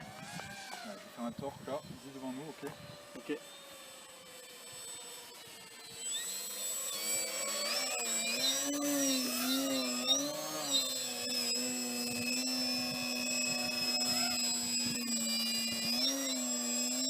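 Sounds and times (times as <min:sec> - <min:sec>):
model aeroplane motor whining: 0:00.0 - 0:17.0.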